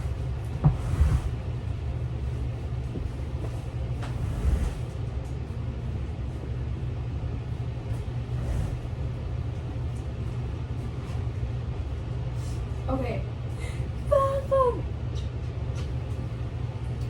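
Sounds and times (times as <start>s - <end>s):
steady low rumble: 0.0s - 14.2s.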